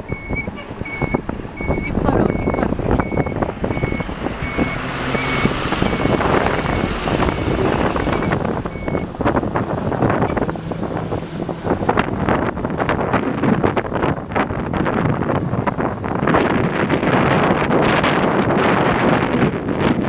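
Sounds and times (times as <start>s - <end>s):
truck reversing alarm beeping: 0.0s - 11.0s
truck engine running: 0.0s - 19.9s
wind buffeting microphone: 0.0s - 20.0s.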